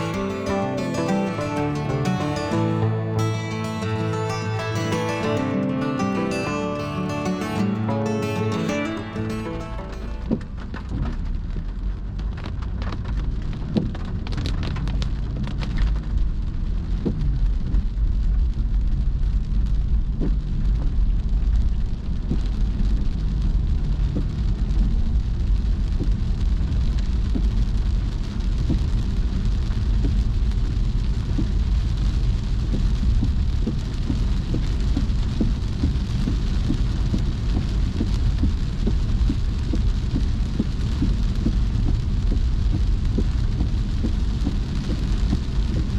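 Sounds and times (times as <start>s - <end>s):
heavy rain on a car: 10.5s - 45.9s.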